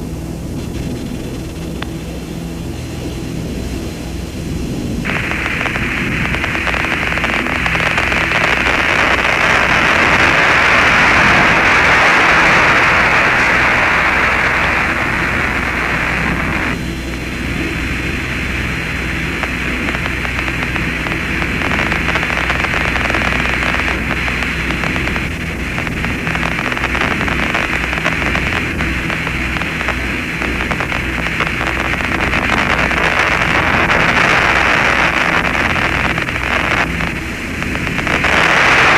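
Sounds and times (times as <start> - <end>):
low hum: 0.0 - 38.9
radio static hiss: 0.0 - 38.9.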